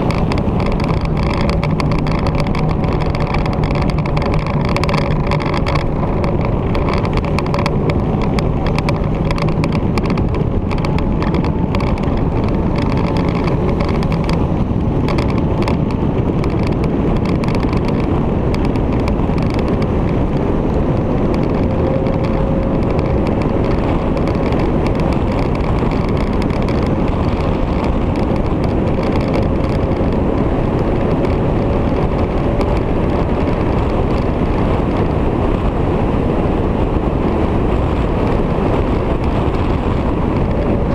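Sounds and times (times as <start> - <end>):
faint motorcycle engine drone: 0.0 - 40.9
road and wind noise: 0.0 - 40.9.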